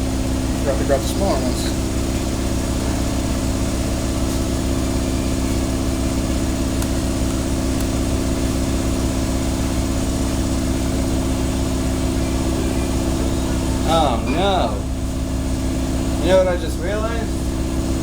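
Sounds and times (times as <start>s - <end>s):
machine hum with low drone: 0.0s - 18.0s.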